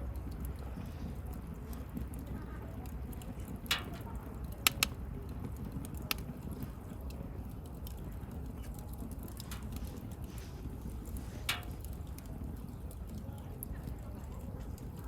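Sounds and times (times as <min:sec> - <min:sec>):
bonfire crackling: 0:00.0 - 0:15.0
sharp pops of fire: 0:03.5 - 0:06.6, 0:08.9 - 0:13.2.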